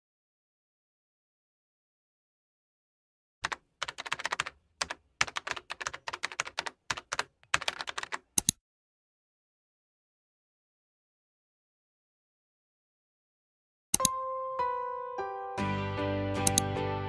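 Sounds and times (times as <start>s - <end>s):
keyboard key clicks: 3.4s - 8.6s, 14.0s - 14.2s, 16.4s - 16.7s.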